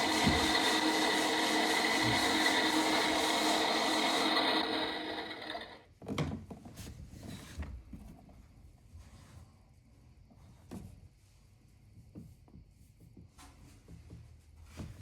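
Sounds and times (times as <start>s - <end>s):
washing machine motor humming: 0.0s - 5.8s.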